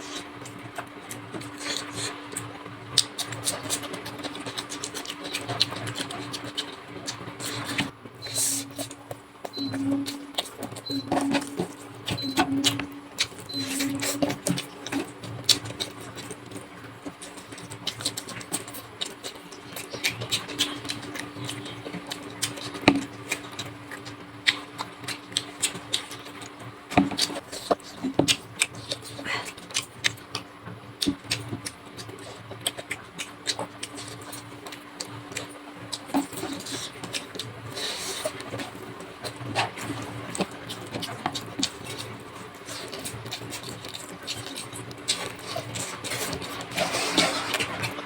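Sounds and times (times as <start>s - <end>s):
wet chewing and lip-smacking: 0.0s - 48.0s
low hum: 9.5s - 14.8s.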